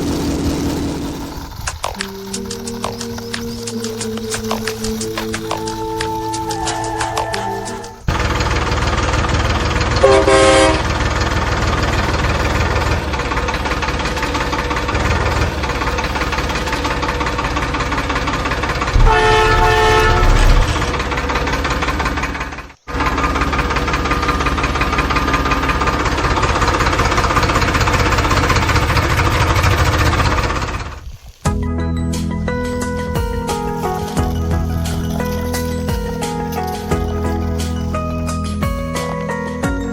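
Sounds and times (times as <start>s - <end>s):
vehicle engine running: 0.0s - 39.9s
short horn blast: 5.7s - 8.2s, 10.0s - 11.0s, 19.0s - 21.1s.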